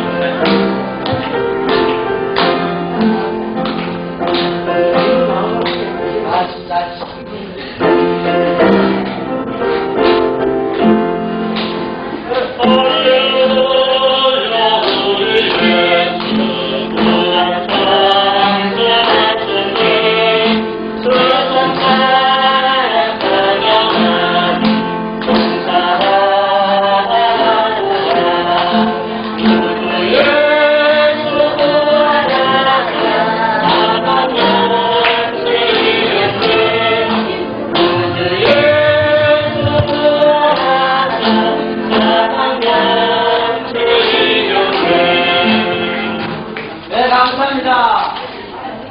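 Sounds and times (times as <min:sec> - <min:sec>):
group singing a hymn: 0:00.0 - 0:07.2, 0:07.9 - 0:47.0
low repeating accompaniment: 0:35.5 - 0:42.3.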